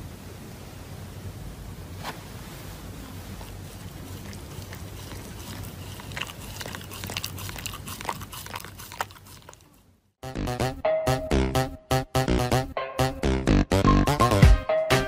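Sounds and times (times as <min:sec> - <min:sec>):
low hiss: 0:00.0 - 0:04.9
dog chewing paper mask: 0:03.0 - 0:09.9.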